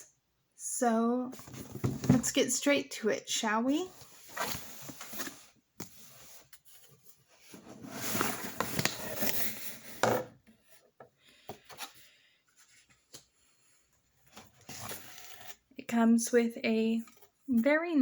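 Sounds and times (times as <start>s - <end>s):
packing rubbing and scraping: 7.7s - 9.8s.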